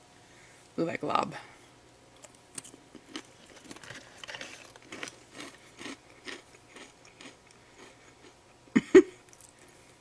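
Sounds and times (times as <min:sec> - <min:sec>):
crunchy chewing of biscuit stick: 0:02.6 - 0:08.6, 0:09.2 - 0:10.0.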